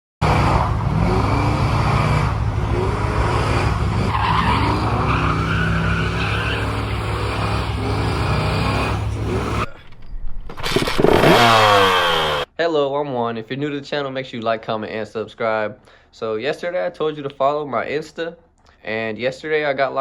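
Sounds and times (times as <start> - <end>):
car engine revving hard: 0.2 - 9.7, 11.0 - 12.5
tyres squealing and skidding: 0.2 - 9.7, 11.0 - 12.5.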